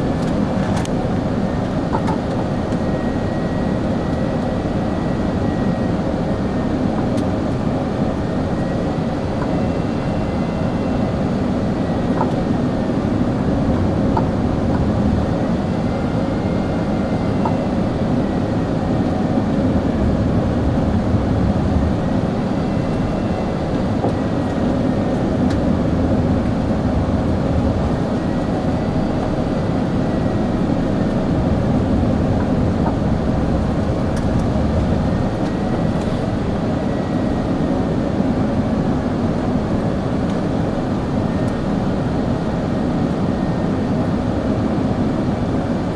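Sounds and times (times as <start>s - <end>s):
airplane cabin rumble: 0.0s - 45.9s.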